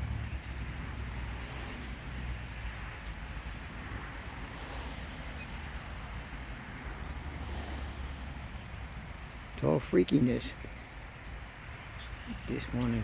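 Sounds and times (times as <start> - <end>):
low rumble: 0.0 - 4.8
faint high insect pulses: 0.0 - 13.0
high-pitched insect trill: 0.0 - 13.0.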